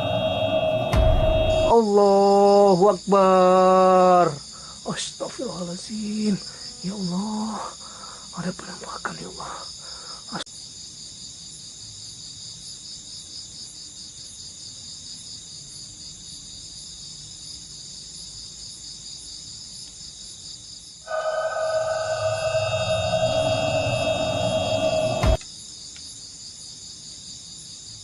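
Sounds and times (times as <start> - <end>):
eerie music drone: 0.0 - 1.8, 21.1 - 25.4
crickets trilling: 0.0 - 28.0.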